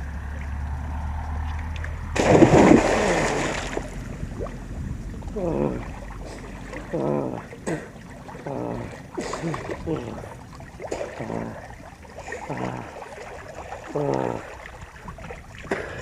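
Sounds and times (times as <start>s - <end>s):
loud water splash: 2.1s - 4.5s.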